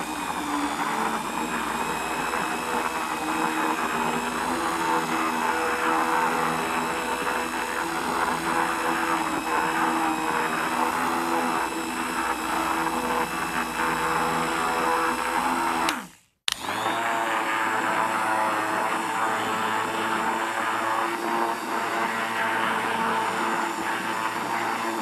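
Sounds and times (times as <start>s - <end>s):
electric hand mixer running: 0.0s - 25.0s.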